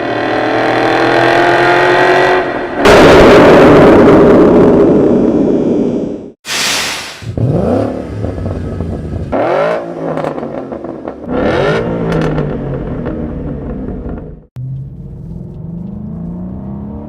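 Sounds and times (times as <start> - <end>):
car engine revving and accelerating: 0.0 - 3.4, 7.3 - 17.0
short hissing rush: 6.4 - 7.4.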